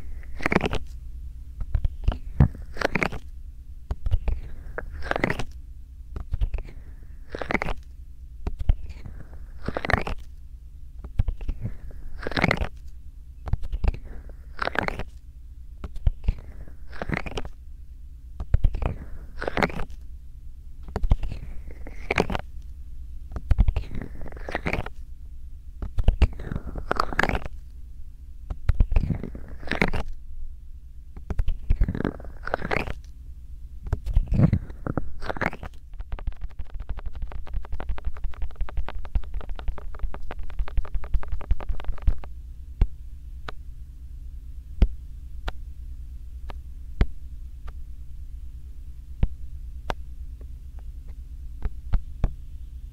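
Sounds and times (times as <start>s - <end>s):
hands rubbing against microphone: 34.0s - 42.3s.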